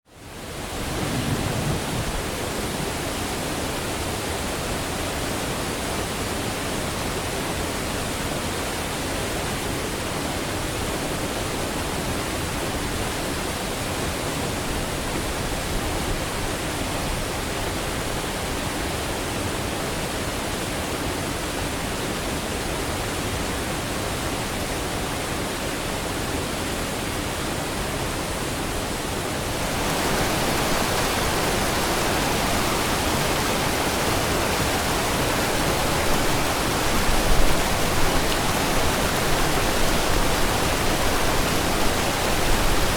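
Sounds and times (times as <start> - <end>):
waterfall rushing: 27.8 - 42.9.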